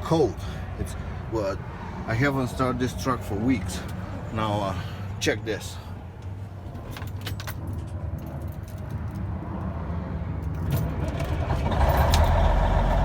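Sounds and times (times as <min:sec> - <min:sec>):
ignition keys jangling: 0:06.7 - 0:09.3, 0:10.4 - 0:12.4
diesel truck engine starting: 0:10.7 - 0:13.0.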